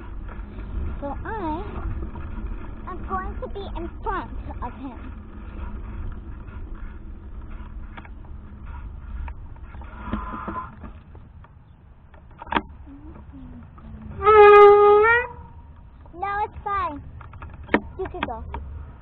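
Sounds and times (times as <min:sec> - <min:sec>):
rumble of wind and tyres: 0:00.0 - 0:19.0.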